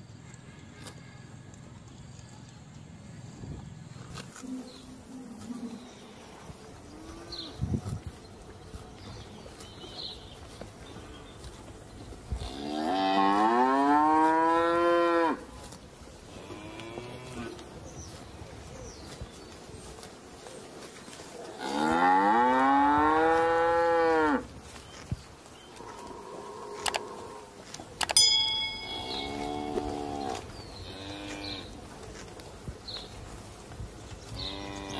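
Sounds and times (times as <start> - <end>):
cattle mooing: 21.4 - 24.4, 28.9 - 31.8.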